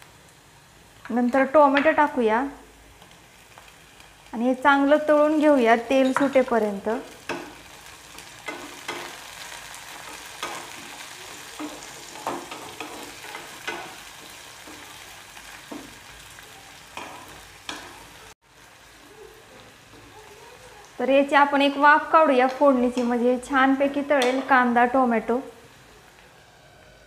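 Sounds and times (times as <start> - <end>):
vegetables sizzling in hot oil: 0.0 - 27.0
spatula scraping and tapping pan: 7.1 - 16.0, 16.9 - 18.1, 24.1 - 24.6.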